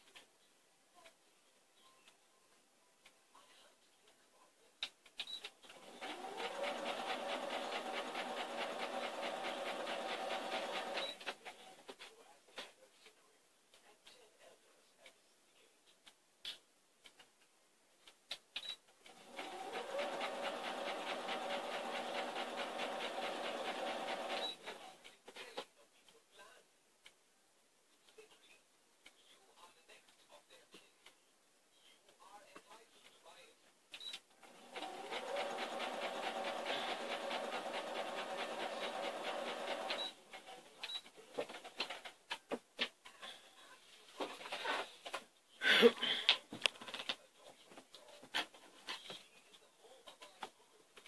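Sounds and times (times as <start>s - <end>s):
sewing machine stitching: 5.7s - 11.8s, 19.1s - 25.0s, 34.4s - 42.2s.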